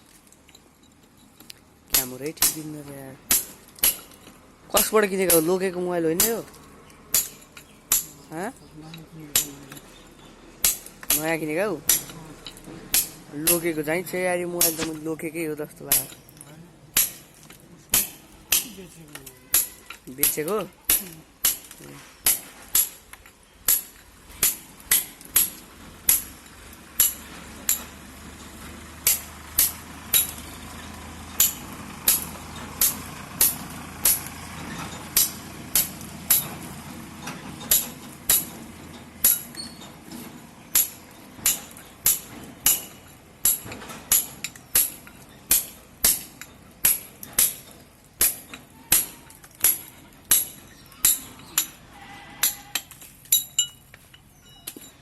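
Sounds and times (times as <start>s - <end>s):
sharp hammer blows: 17.9s - 23.0s.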